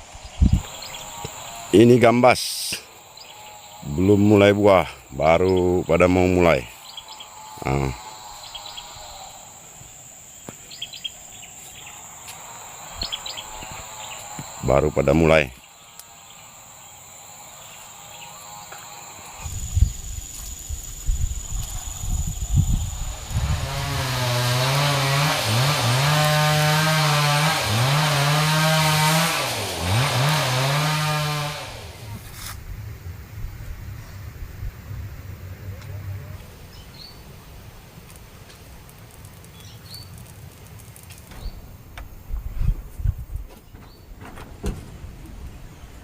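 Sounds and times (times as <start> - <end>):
high-pitched insect drone: 0.3 - 24.8
small engine running fast: 0.4 - 2.1, 6.1 - 9.7, 11.8 - 15.4, 21.0 - 32.5.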